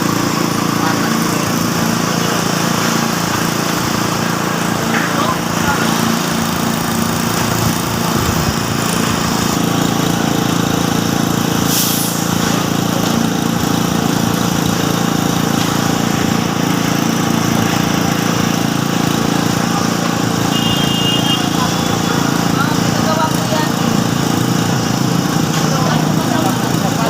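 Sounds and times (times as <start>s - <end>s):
small machinery engine running: 0.0s - 27.0s
brief hiss: 11.7s - 12.3s.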